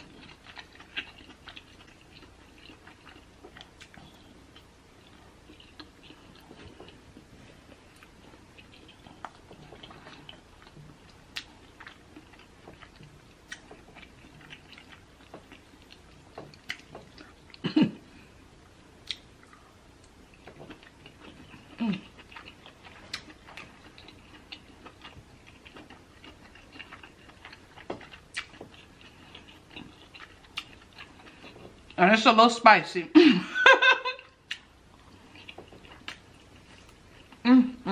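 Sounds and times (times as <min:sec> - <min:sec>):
person chewing: 0:00.0 - 0:32.0, 0:34.0 - 0:37.4.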